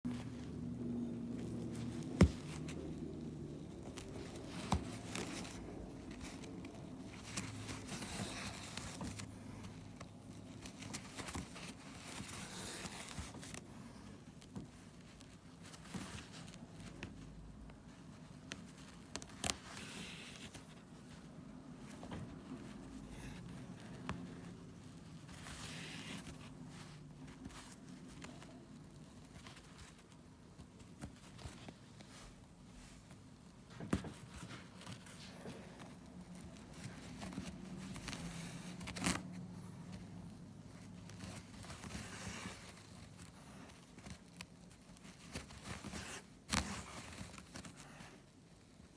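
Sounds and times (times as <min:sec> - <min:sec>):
rustling and scraping handling: 0:00.1 - 0:48.9.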